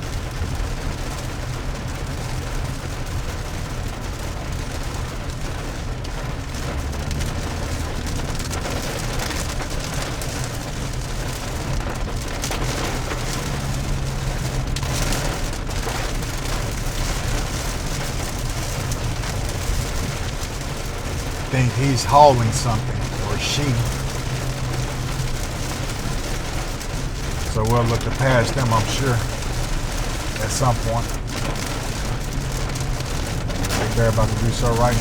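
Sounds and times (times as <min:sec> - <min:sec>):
low engine and road hum: 0:00.0 - 0:35.0
rain on vehicle: 0:00.0 - 0:35.0
tyres on wet road: 0:00.0 - 0:35.0.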